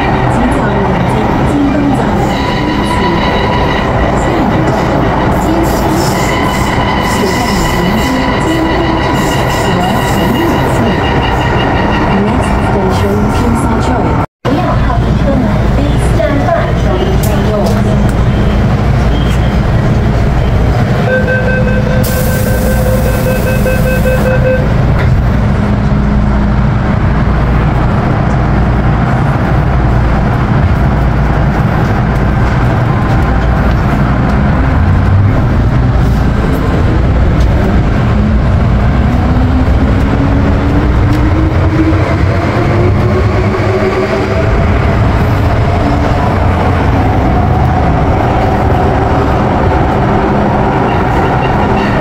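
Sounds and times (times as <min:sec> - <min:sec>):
metro train wheel rumble: 0:00.0 - 0:52.0
pulsing beep: 0:21.1 - 0:24.7.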